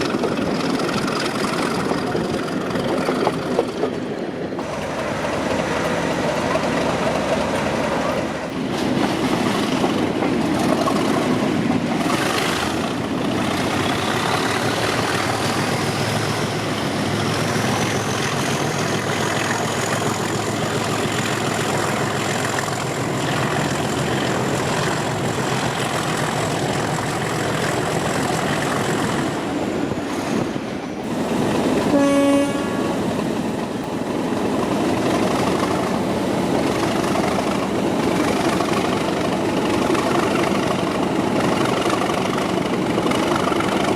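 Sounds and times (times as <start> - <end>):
train horn blast: 31.9 - 33.0.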